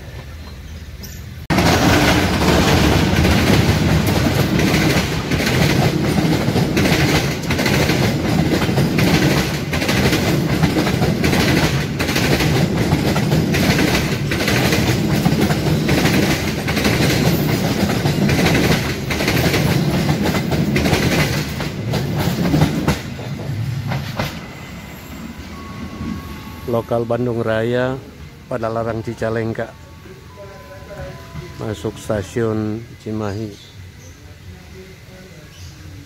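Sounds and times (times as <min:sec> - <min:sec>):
train coaches rumbling past: 0:00.0 - 0:36.0
wheels clattering over rail joints: 0:00.1 - 0:24.4.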